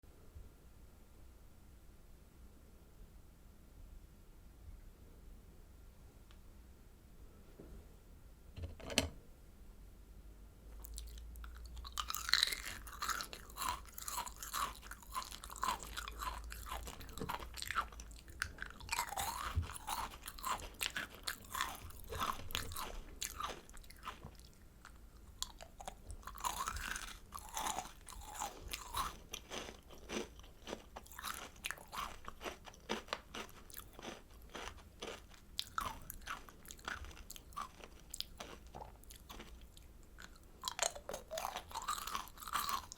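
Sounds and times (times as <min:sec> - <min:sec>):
crunching and chewing candy: 0:10.8 - 0:42.9.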